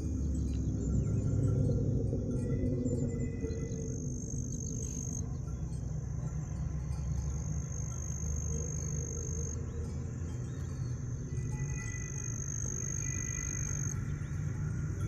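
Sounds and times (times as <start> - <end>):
low rumble: 0.0 - 8.8
insects trilling: 0.0 - 15.0.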